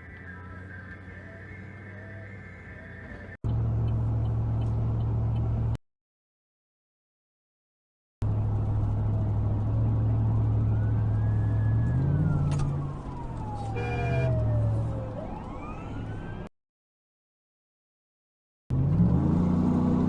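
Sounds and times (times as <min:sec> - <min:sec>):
emergency vehicle siren wailing: 0:00.0 - 0:03.4, 0:10.0 - 0:16.5.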